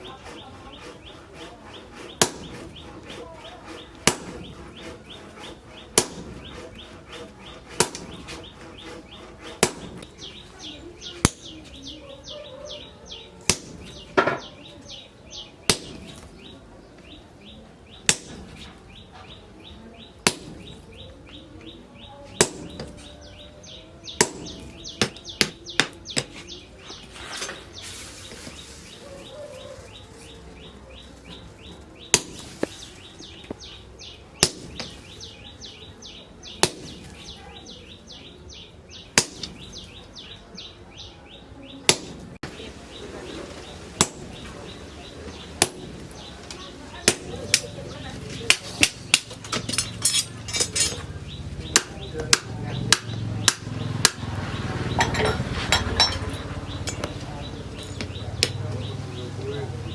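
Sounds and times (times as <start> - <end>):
heavy hammer blows on metal: 0.0 - 10.4, 13.4 - 14.5, 18.1 - 18.8, 20.2 - 21.1, 22.4 - 23.1, 23.7 - 27.6, 47.0 - 59.9.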